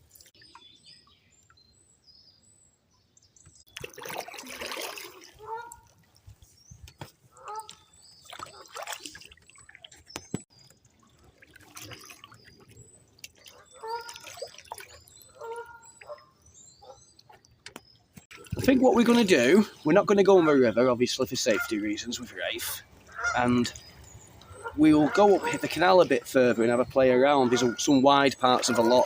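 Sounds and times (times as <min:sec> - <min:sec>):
canoe paddle splashing in water: 0:03.7 - 0:06.4, 0:07.4 - 0:10.3, 0:11.2 - 0:16.2, 0:18.2 - 0:19.7, 0:27.4 - 0:29.0
birds calling: 0:04.8 - 0:29.0.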